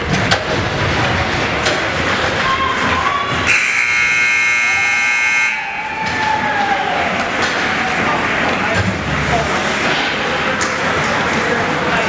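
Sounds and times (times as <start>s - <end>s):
ice rink noise: 0.0s - 12.0s
electric buzzer: 3.5s - 5.7s.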